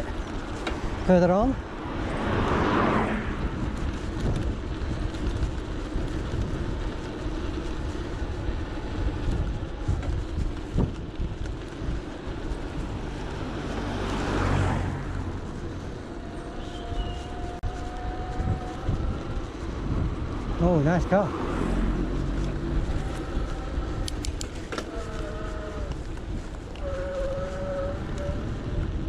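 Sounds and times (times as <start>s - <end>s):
electric bike road noise: 0.0s - 29.0s
vehicle passing: 0.0s - 29.0s
wind on microphone: 0.0s - 29.0s.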